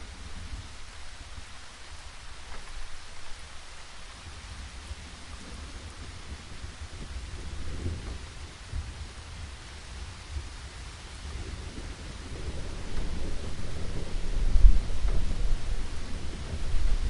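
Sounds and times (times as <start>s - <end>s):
steady rain falling: 0.0s - 17.0s
distant thunder rumble: 4.5s - 17.0s.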